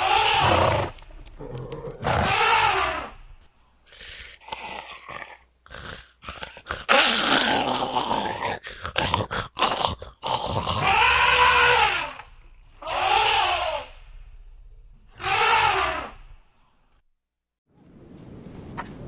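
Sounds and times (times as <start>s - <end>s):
animal growl: 0.0s - 3.2s, 3.9s - 14.1s.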